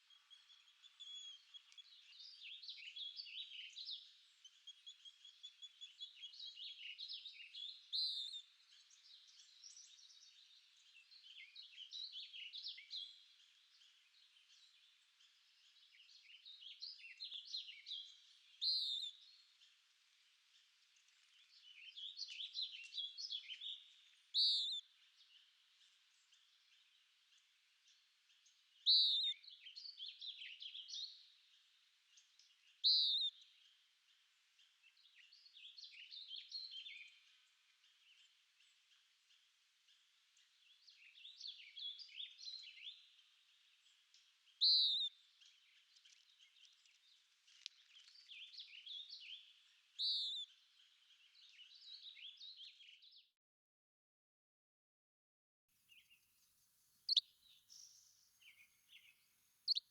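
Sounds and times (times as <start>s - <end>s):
birds twittering: 48.0s - 50.4s, 57.1s - 59.9s.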